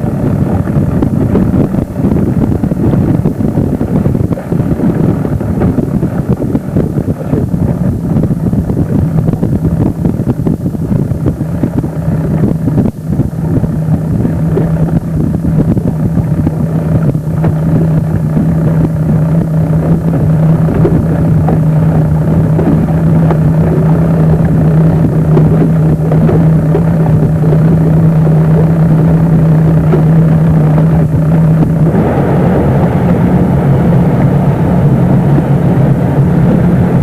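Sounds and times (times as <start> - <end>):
motorboat engine running: 0.0 - 37.0
wind buffeting microphone: 0.0 - 37.0.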